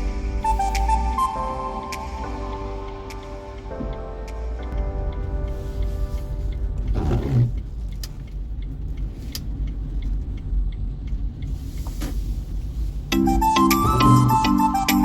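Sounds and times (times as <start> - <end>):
car driving rumble: 0.0 - 15.0
hiss: 11.4 - 13.2.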